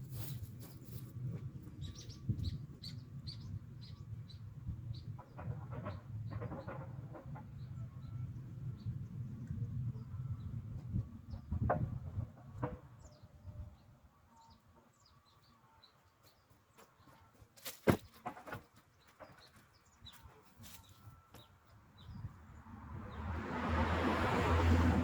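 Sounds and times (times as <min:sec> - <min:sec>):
birds chirping: 0:12.6 - 0:22.5.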